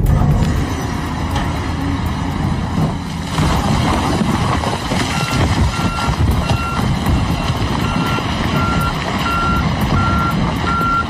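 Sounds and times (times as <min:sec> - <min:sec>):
heavy engine rumble: 0:00.0 - 0:11.0
reversing alarm beeping: 0:05.1 - 0:11.0.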